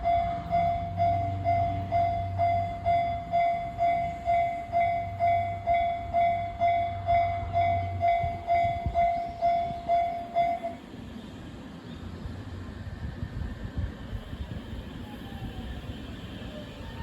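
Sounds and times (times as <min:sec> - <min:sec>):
level crossing warning bell: 0:00.0 - 0:10.8
train rumbling and clattering: 0:00.0 - 0:17.0.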